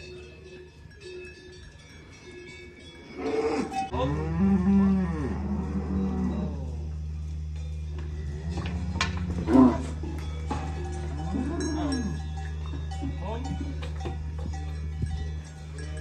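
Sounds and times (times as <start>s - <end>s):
cowbells clinking: 0.0s - 16.0s
cow mooing: 3.1s - 7.0s, 8.2s - 12.5s
steady low drone: 3.9s - 16.0s.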